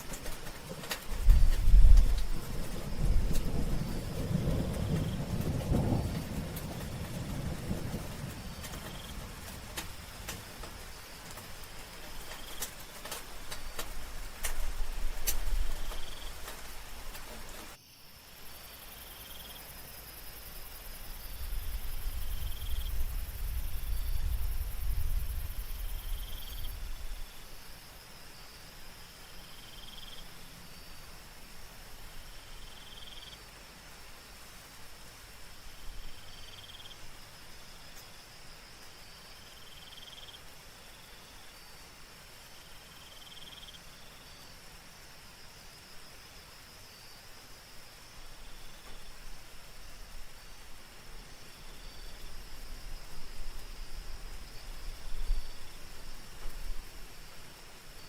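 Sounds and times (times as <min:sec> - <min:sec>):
low rumble of thunder: 0:00.0 - 0:17.6, 0:20.2 - 0:28.0, 0:48.2 - 0:58.0
crickets trilling: 0:00.0 - 0:58.0
soft rain: 0:00.0 - 0:58.0.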